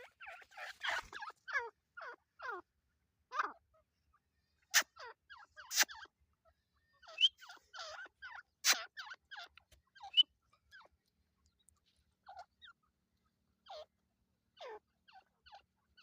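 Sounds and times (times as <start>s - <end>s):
partridges calling: 0.0s - 2.6s, 4.6s - 6.1s, 6.8s - 10.9s.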